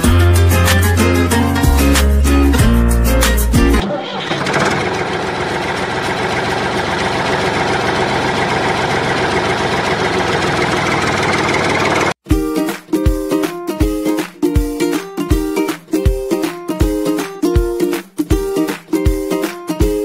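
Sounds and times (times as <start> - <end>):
music: 0.0 - 3.8, 12.2 - 20.0
tractor engine running: 3.8 - 12.2.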